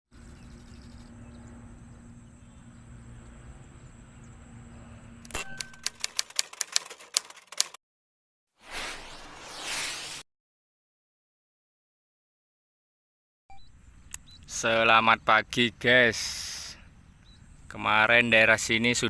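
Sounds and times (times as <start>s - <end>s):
sharp typewriter-like clicks: 5.3s - 7.8s.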